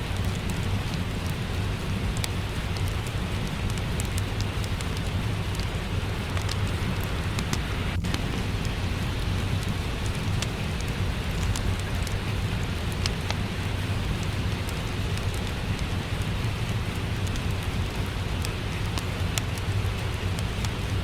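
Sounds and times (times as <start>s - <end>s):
steady rain falling: 0.0s - 21.0s
wood fire crackling and popping: 0.0s - 21.0s.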